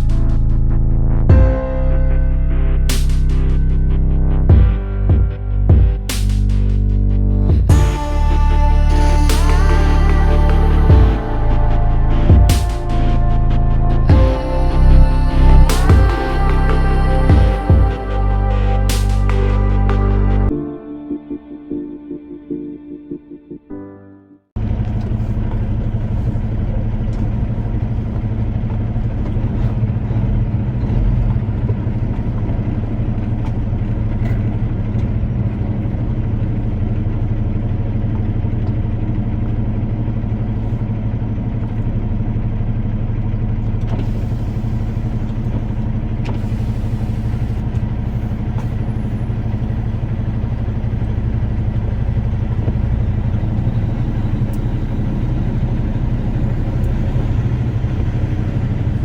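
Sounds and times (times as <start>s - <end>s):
vehicle engine droning: 0.0s - 20.6s, 24.6s - 59.0s
road and wind noise: 24.6s - 59.0s.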